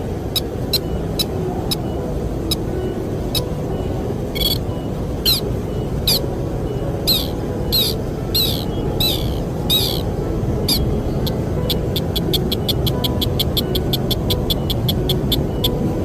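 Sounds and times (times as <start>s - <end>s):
bird chirping sharply: 4.4s - 5.4s, 7.1s - 10.1s.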